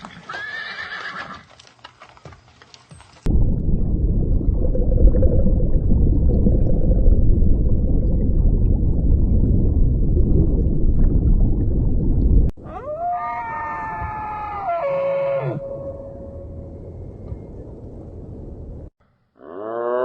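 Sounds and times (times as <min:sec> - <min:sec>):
loud low rumbling: 0:03.3 - 0:12.6, 0:15.6 - 0:18.9.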